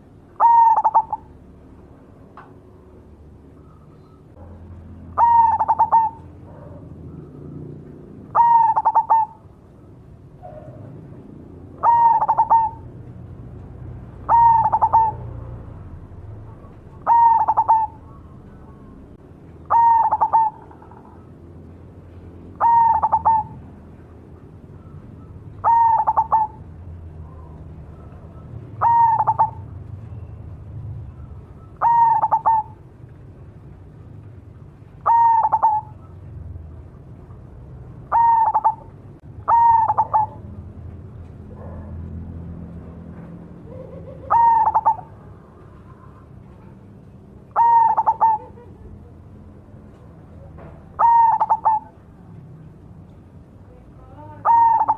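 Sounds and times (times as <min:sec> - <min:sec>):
dove cooing: 0:00.0 - 0:01.4, 0:03.6 - 0:09.6, 0:11.6 - 0:13.0, 0:14.2 - 0:21.4, 0:22.5 - 0:23.8, 0:24.8 - 0:30.3, 0:31.0 - 0:32.8, 0:35.0 - 0:36.3, 0:38.0 - 0:40.6, 0:43.6 - 0:49.7, 0:50.3 - 0:52.1, 0:54.3 - 0:54.9.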